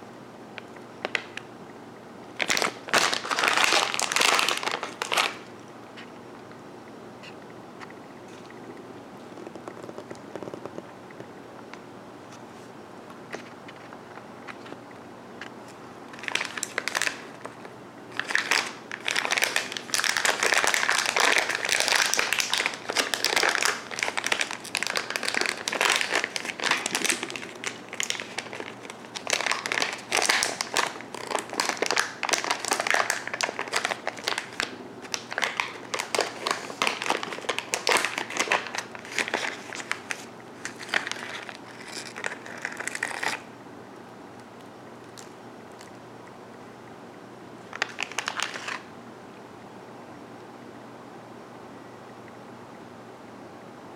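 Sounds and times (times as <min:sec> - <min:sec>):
plastic bag crinkling: 0:02.4 - 0:05.5, 0:16.1 - 0:43.5, 0:47.7 - 0:48.9.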